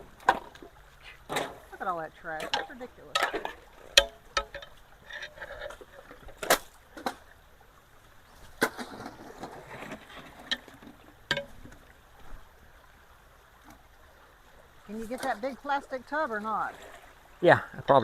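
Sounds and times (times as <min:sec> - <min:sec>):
faint running water: 0:00.0 - 0:18.0
sharp knocks and clatters: 0:02.4 - 0:07.2, 0:08.6 - 0:11.8.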